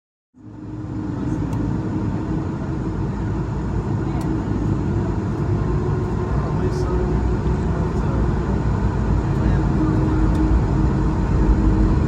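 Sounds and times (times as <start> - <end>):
airplane cabin low rumble: 0.4 - 12.0
constant hum tone: 0.4 - 12.0.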